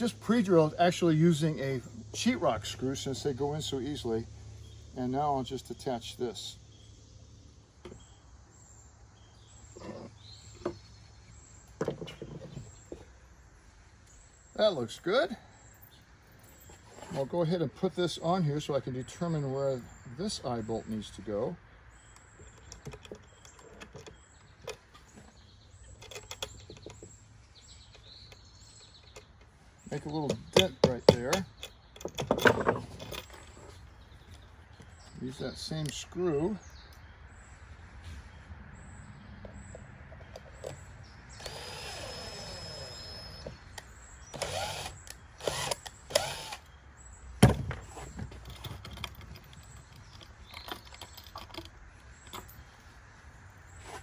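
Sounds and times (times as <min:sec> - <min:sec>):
cordless drill whining: 0:41.4 - 0:43.6, 0:44.3 - 0:46.7
small hardware clicking: 0:41.4 - 0:46.7.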